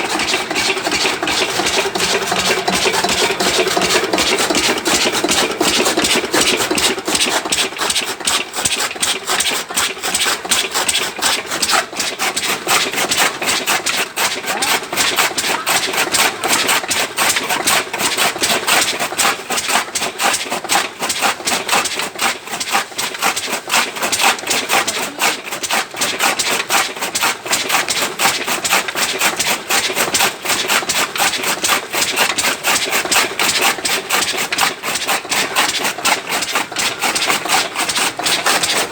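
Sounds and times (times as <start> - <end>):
diesel engine knocking: 0.0 - 7.8
chaff cutter chopping sugarcane: 0.0 - 38.9.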